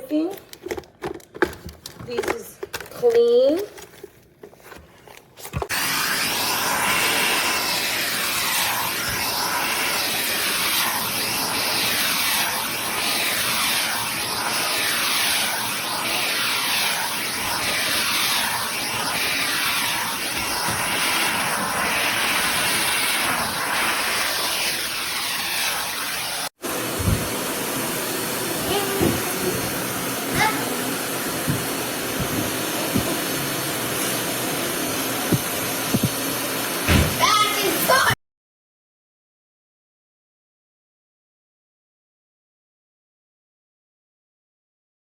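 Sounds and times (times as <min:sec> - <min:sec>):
vacuum cleaner running: 0:05.7 - 0:38.2.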